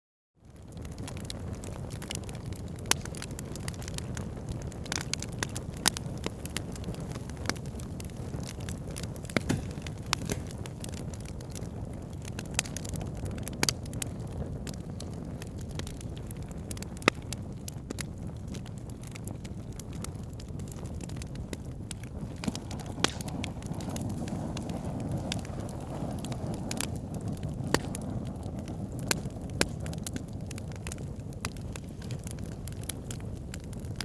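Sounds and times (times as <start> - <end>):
fire crackling and popping: 0.4 - 34.0
fireplace flame rumble: 0.4 - 34.0.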